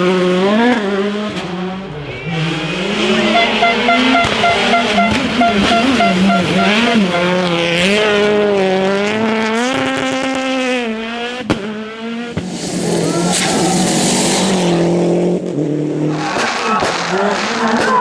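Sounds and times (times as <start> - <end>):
rally car engine revving: 0.0 - 18.0
sharp crack: 12.3 - 15.0.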